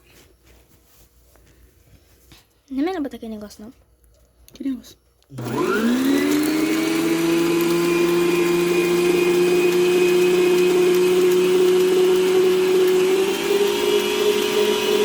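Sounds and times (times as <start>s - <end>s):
electric mixer motor running: 5.4s - 15.0s.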